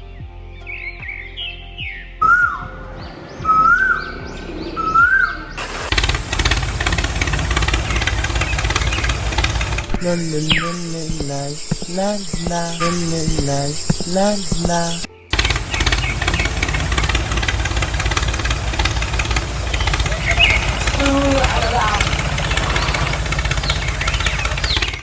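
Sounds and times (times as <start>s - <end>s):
engine chugging rapidly: 5.5s - 25.0s
cartoon character wordless voice: 9.9s - 15.1s.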